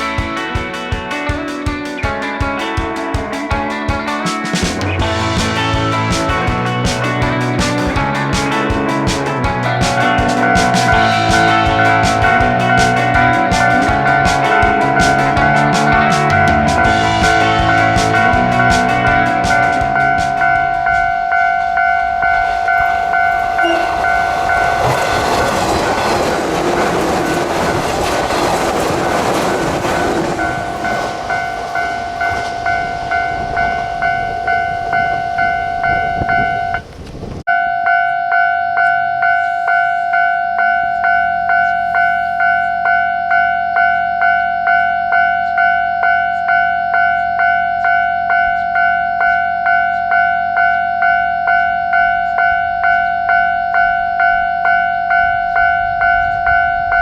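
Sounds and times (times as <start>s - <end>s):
train passing: 4.1s - 37.0s
level crossing bell ringing: 8.2s - 26.2s, 30.4s - 36.8s, 37.5s - 57.0s.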